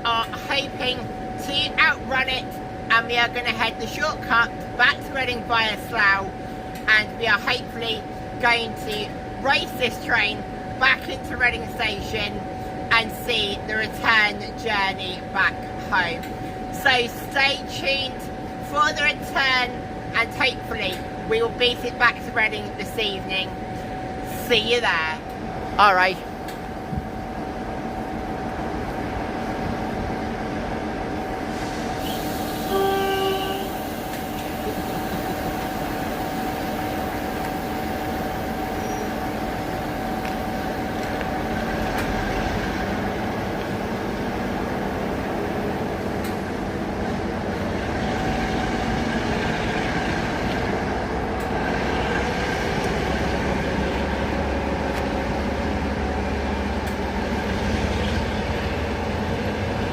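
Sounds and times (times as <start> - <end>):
train rumbling: 0.0 - 59.9
brief horn-like tone: 32.0 - 33.9.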